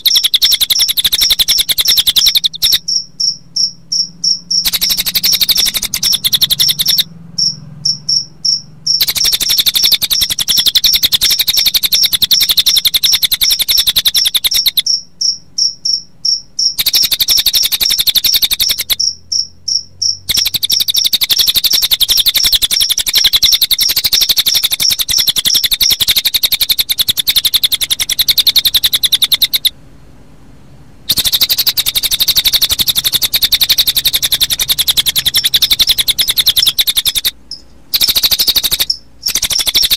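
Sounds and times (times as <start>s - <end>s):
cricket chirping: 0.0s - 29.8s, 31.1s - 39.9s.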